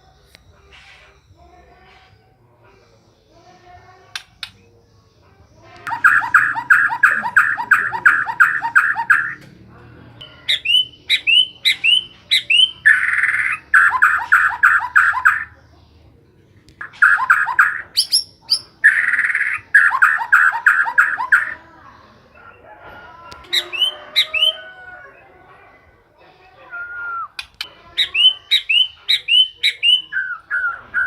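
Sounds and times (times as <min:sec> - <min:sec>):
bird singing whistled phrases: 0:05.9 - 0:09.4, 0:10.4 - 0:15.5, 0:26.7 - 0:31.0.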